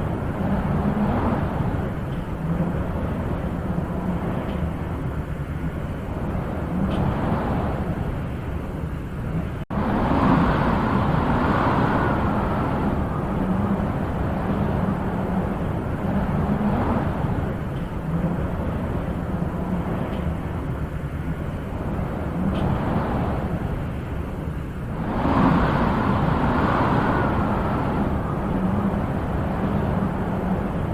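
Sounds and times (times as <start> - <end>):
wind blowing in gusts: 0.0 - 30.9.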